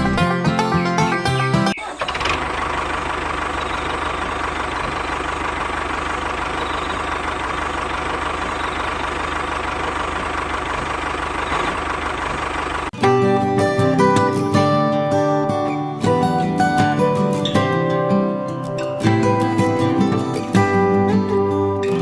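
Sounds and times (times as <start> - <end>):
music: 0.0 - 1.8, 13.0 - 22.0
engine idling with chugging: 0.0 - 14.7.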